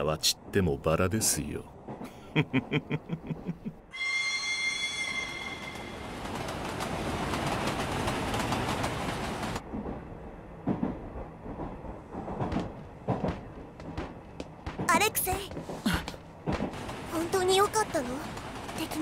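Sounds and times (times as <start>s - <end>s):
train running: 0.0s - 19.0s
high steady train whistle: 3.9s - 6.1s.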